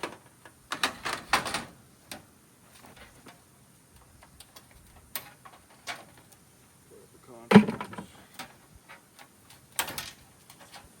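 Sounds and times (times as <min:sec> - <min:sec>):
metal parts knocking and clanking: 0:09.8 - 0:10.9.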